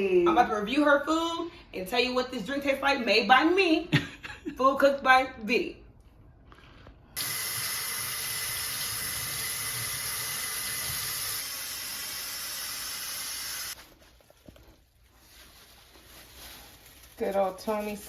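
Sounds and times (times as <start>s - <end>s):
water running from a tap: 7.2s - 13.8s.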